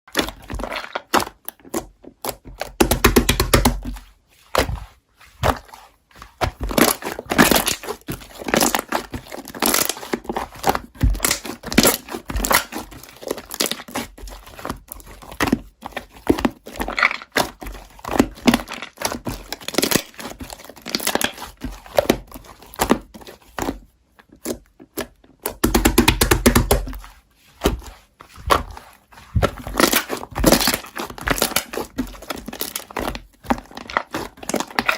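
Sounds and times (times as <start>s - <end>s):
small items tapping and knocking: 0.1s - 4.0s, 4.6s - 34.9s
packaging crinkling and tearing: 18.1s - 21.4s, 28.7s - 34.9s.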